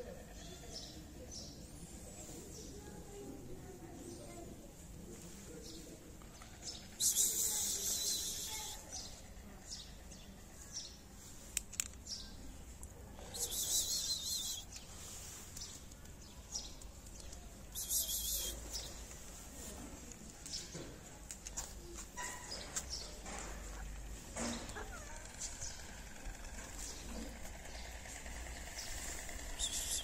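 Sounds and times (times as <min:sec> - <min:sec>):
small birds twittering: 0:05.6 - 0:19.4, 0:21.9 - 0:30.0.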